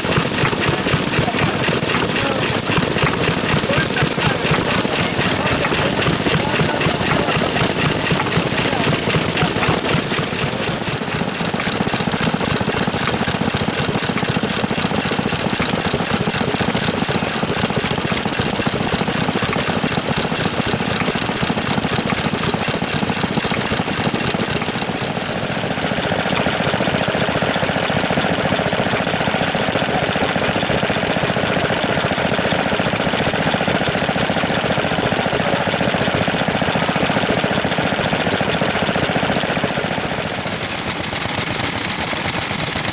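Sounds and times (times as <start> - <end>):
stationary engines chugging: 0.0 - 42.9.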